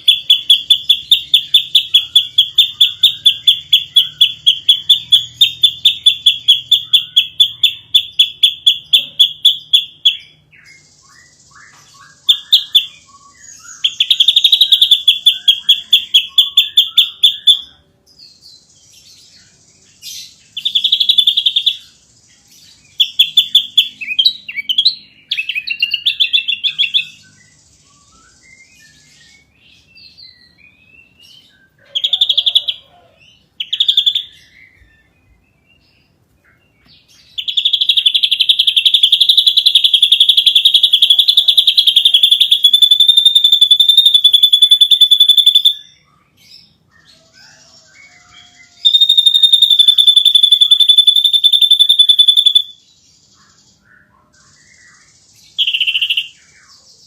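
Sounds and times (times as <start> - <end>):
bird whistled phrases: 0.0 - 17.9, 37.4 - 46.0, 47.4 - 52.8, 55.6 - 56.8
bird singing pulsed notes: 0.0 - 57.0.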